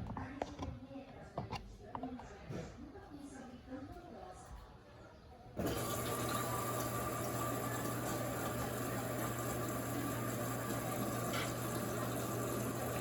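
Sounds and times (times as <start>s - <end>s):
inlet valve humming: 5.6s - 13.0s
water rushing into tub: 5.6s - 13.0s.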